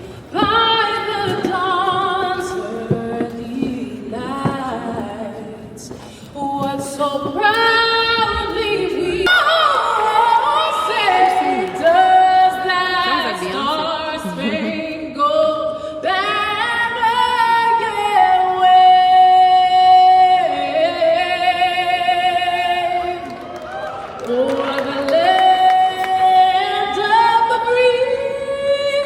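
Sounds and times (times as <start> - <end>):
person singing with vibrato: 0.0 - 29.0.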